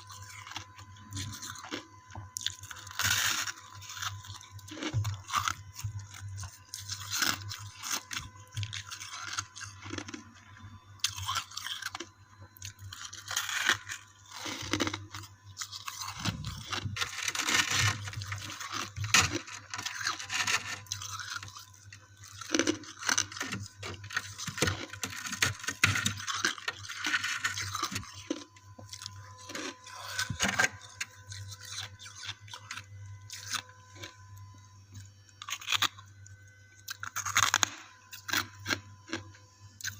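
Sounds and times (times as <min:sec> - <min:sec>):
chewing ice chunks: 0:00.0 - 0:39.9.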